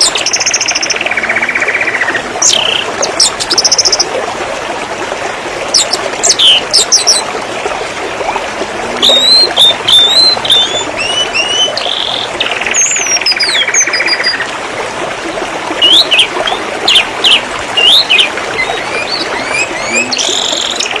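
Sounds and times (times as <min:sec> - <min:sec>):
canary singing: 0:09.0 - 0:14.5, 0:16.9 - 0:20.9.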